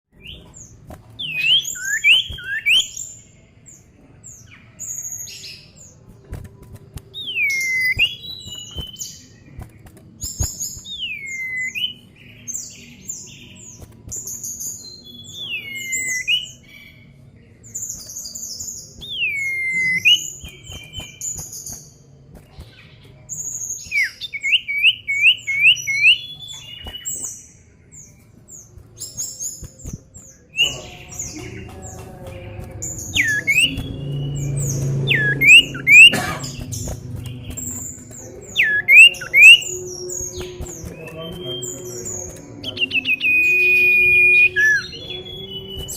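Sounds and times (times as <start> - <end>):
high bird chirps: 0.1 - 22.0, 22.6 - 45.9
bird whistling: 1.2 - 3.1, 7.2 - 9.1, 10.7 - 12.1, 19.0 - 21.2, 23.8 - 27.0, 32.8 - 45.9.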